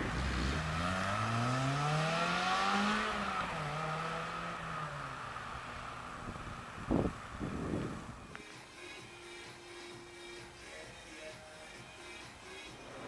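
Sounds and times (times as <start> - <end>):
car engine accelerating: 0.0 - 8.3.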